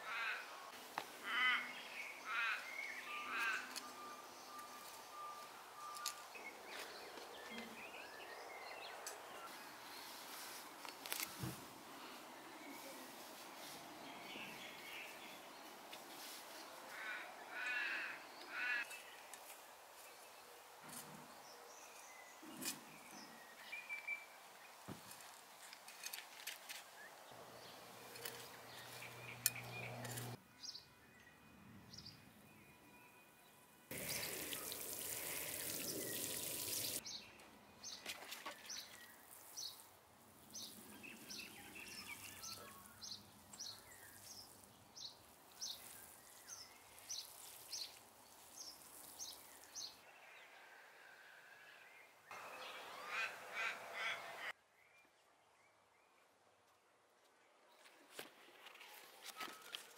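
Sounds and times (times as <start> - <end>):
bird chirping: 27.1 - 33.1, 40.4 - 50.1
steady hiss: 33.9 - 37.0.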